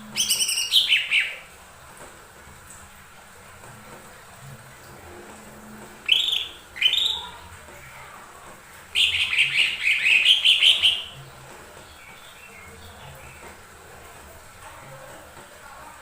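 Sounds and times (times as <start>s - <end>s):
bird singing calls and warbling: 0.1s - 1.5s, 6.0s - 7.4s, 8.9s - 11.2s.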